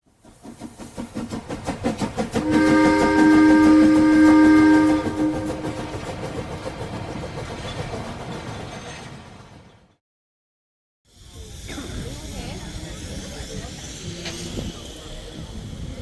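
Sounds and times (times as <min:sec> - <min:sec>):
steam locomotive exhaust beats: 0:00.1 - 0:08.8, 0:11.1 - 0:16.0
chime steam whistle: 0:02.4 - 0:06.1.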